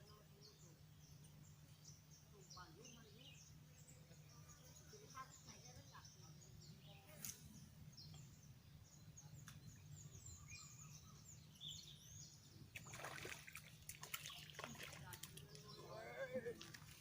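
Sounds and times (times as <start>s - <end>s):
small bird chirping: 0.0s - 15.9s.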